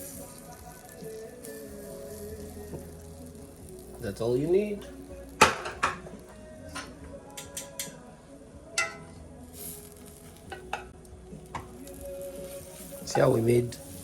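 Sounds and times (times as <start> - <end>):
bun sizzling in pan: 0.0 - 6.4, 9.5 - 14.0.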